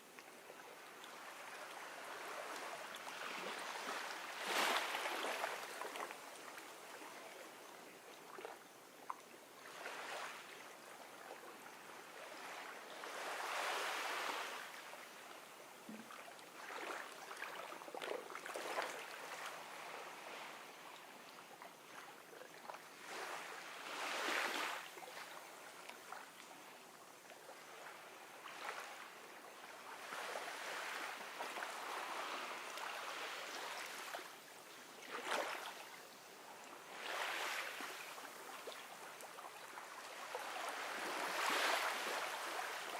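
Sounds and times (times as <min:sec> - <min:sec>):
ocean waves washing onto beach: 0:00.8 - 0:06.9, 0:29.8 - 0:34.4, 0:36.7 - 0:42.9.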